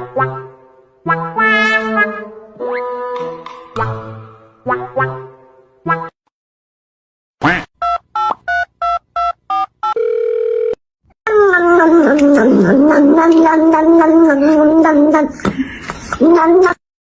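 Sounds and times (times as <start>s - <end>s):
steady phone tone: 7.8s - 10.8s.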